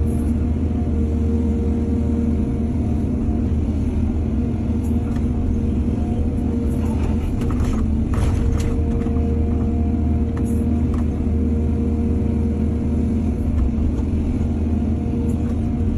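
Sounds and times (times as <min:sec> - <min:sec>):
excavator diesel engine running: 0:00.0 - 0:15.9.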